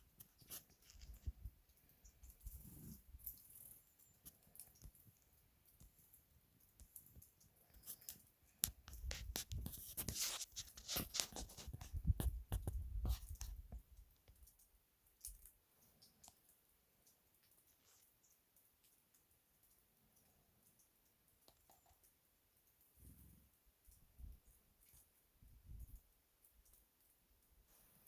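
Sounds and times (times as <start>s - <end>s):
light clicks and scratches: 0.0s - 28.0s.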